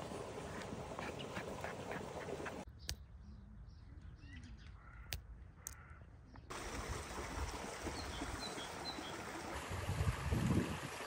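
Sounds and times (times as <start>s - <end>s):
bird chirps: 2.7s - 6.5s.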